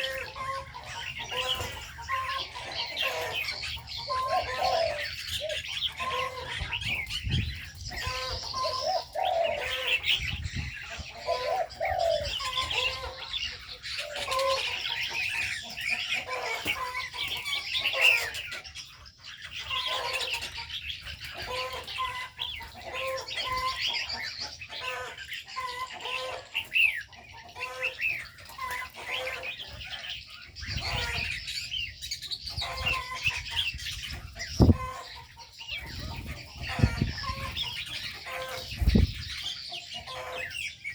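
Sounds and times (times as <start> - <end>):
doves cooing: 0.0 - 18.6
birds chirping and twittering: 0.0 - 40.9.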